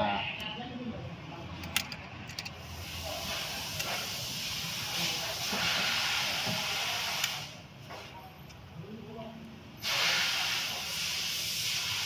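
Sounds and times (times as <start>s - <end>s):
pressurised jet hissing: 2.6s - 7.6s, 9.8s - 12.0s.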